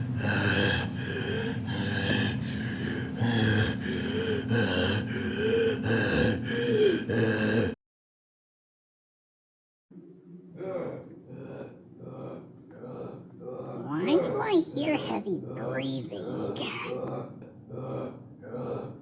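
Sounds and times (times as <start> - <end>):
person gasping and breathing heavily: 13.8 - 17.1.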